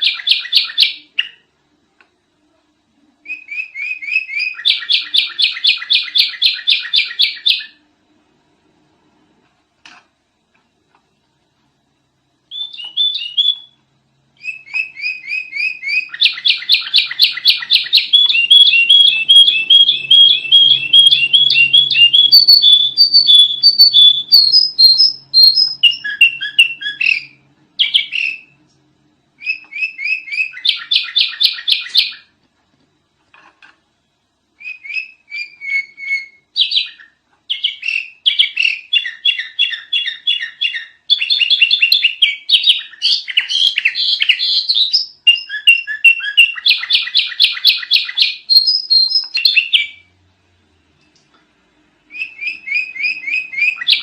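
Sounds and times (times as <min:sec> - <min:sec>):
bulbul chattering song: 0:14.4 - 0:28.6.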